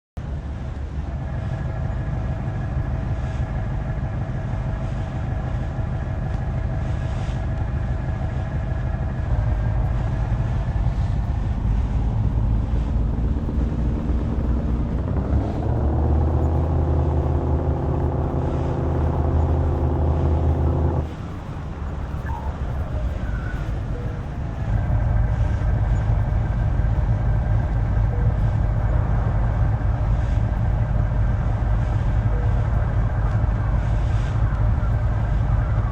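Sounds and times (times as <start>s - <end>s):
truck engine revving: 8.6s - 21.1s, 24.5s - 35.9s.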